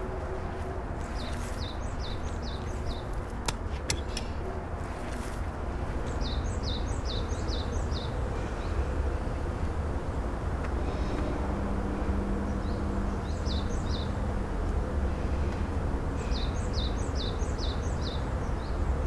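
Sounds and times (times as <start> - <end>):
songbird singing: 0.0 - 5.2, 5.8 - 9.4, 12.3 - 14.3, 16.2 - 18.9
low outdoor rumble: 0.0 - 19.0.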